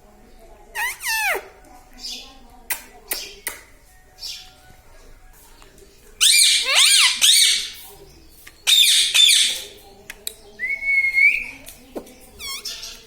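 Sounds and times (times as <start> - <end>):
parrot harsh calls: 0.8 - 1.5, 6.2 - 7.8, 8.7 - 9.6.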